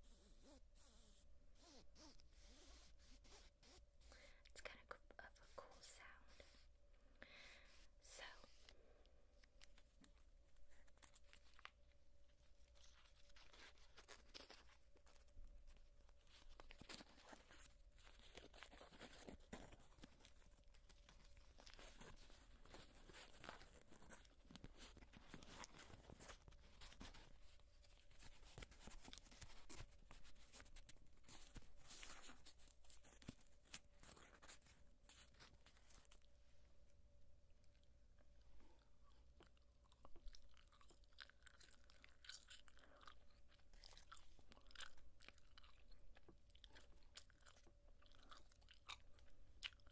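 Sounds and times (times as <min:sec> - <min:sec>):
gum chewing clicks and smacks: 0:37.6 - 0:49.9.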